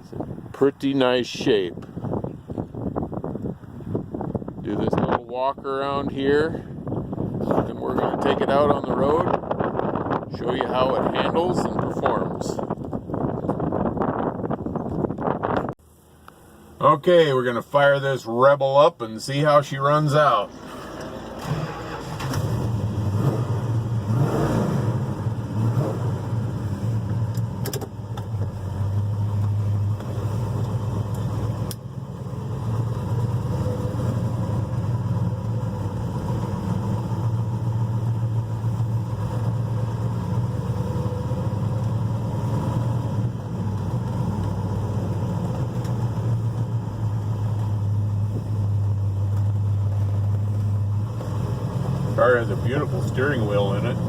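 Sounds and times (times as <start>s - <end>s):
car engine starting and revving: 19.3s - 54.0s.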